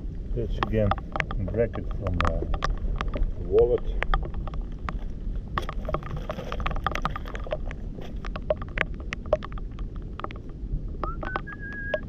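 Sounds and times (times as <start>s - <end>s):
water: 0.0s - 12.0s
wind: 0.0s - 12.0s
small stones clicking together: 5.7s - 12.0s.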